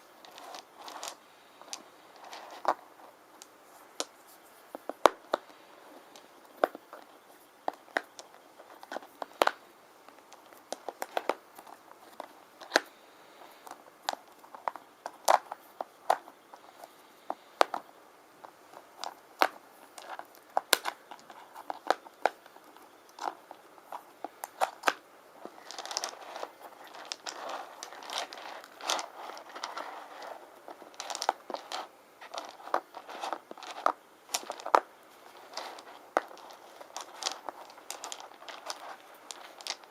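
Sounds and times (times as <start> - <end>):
stones clattering and scratching: 0.1 - 39.9
stone pieces clicking: 19.0 - 39.9.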